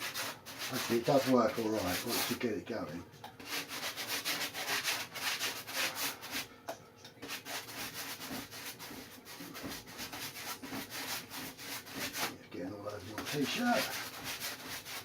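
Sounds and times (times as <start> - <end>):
paintbrush scrubbing glue: 0.0 - 2.4, 13.0 - 15.0.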